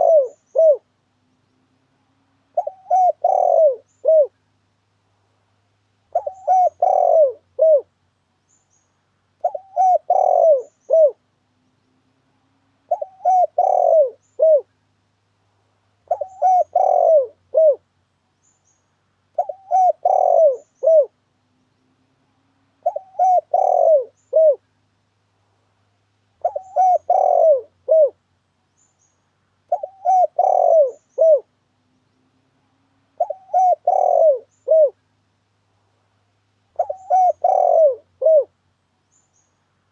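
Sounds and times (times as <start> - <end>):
dove cooing: 0.0 - 0.9, 2.5 - 4.4, 6.1 - 7.9, 9.4 - 11.3, 12.8 - 14.7, 16.1 - 17.8, 19.4 - 21.2, 22.8 - 24.6, 26.4 - 28.2, 29.7 - 31.6, 33.1 - 35.0, 36.8 - 38.6.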